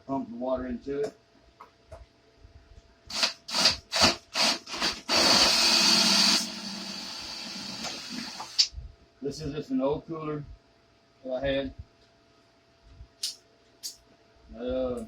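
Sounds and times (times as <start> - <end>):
cordless drill motor: 3.1 - 8.6.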